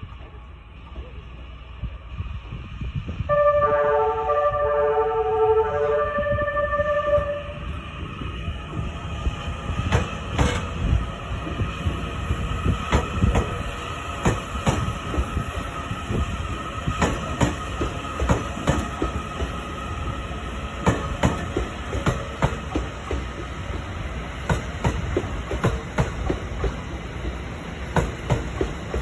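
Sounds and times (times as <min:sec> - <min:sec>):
train rumble: 0:00.0 - 0:29.0
wheels clacking over rail joints: 0:09.8 - 0:12.0, 0:16.9 - 0:19.6, 0:20.8 - 0:29.0.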